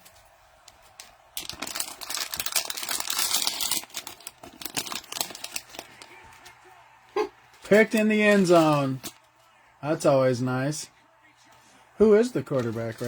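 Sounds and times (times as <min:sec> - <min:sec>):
cellophane wrapper crinkling and tearing: 0:00.6 - 0:06.6, 0:07.7 - 0:09.4.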